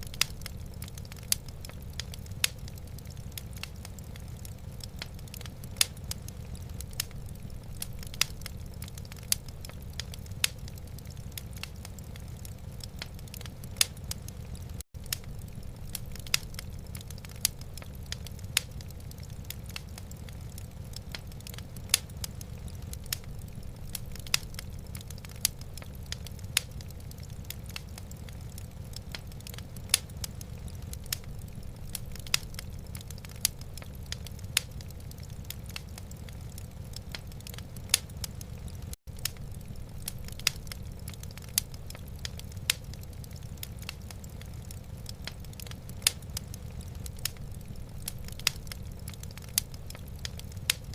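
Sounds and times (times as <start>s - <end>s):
wood fire crackling and popping: 0.0s - 50.9s.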